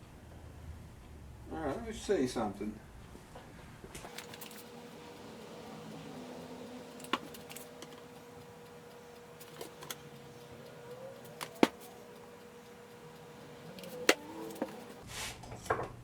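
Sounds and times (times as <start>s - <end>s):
faint steady hum: 4.0s - 15.0s
screwdriver tapping screw heads: 4.1s - 15.0s.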